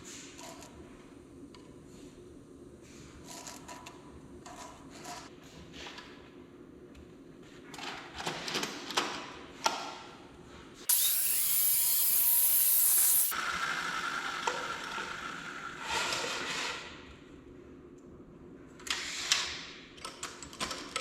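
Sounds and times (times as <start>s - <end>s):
power tool working wood: 10.9s - 15.0s.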